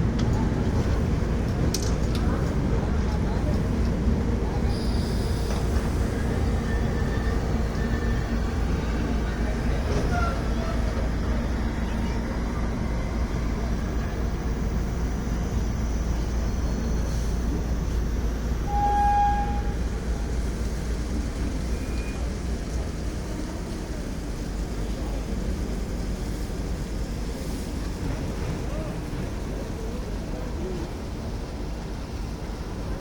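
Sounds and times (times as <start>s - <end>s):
moving train rumble: 0.0s - 33.0s
train horn toot: 18.7s - 19.8s.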